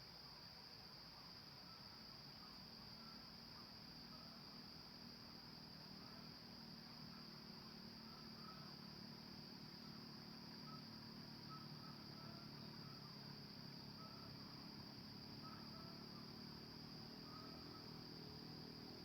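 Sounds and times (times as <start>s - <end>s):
high-pitched insect drone: 7.1s - 19.0s.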